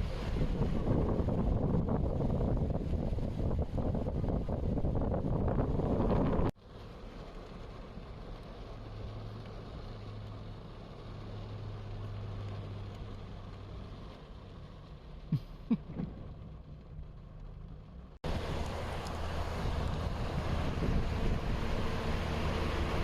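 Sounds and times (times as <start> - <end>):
wind on microphone: 0.0 - 6.6, 19.4 - 23.0
rushing water: 0.0 - 16.8, 18.2 - 23.0
low vehicle engine hum: 0.0 - 23.0.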